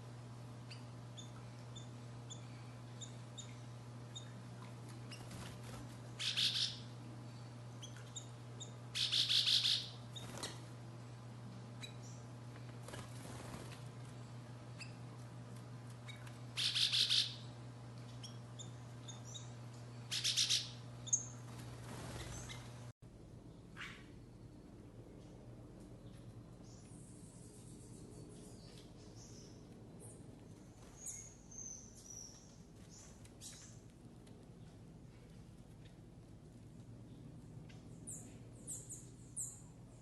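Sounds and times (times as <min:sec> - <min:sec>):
steady low hum: 0:00.0 - 0:40.0
buzzy high bird calls: 0:06.2 - 0:06.9, 0:07.8 - 0:10.5, 0:16.0 - 0:17.5, 0:18.1 - 0:22.8
faint bird chirps: 0:06.2 - 0:10.4, 0:16.0 - 0:17.4, 0:18.1 - 0:21.4.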